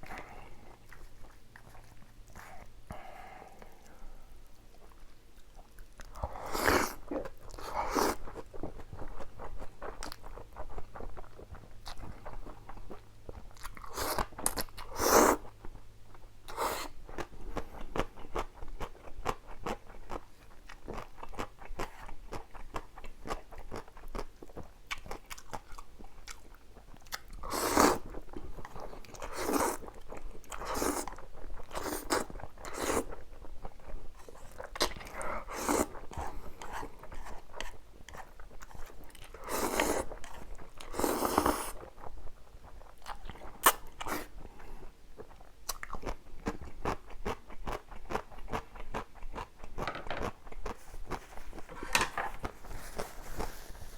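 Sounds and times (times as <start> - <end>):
chewing noodles: 0.1 - 2.7, 3.6 - 53.5
slurping noodles: 6.2 - 8.3, 14.9 - 15.5, 27.4 - 28.1, 35.1 - 36.9, 39.4 - 40.1, 40.9 - 41.8.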